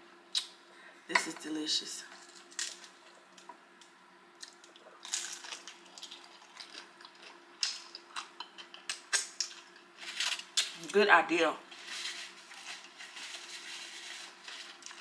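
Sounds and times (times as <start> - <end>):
crunching and chewing crispy food: 2.2 - 3.5, 4.4 - 10.9, 11.7 - 15.0.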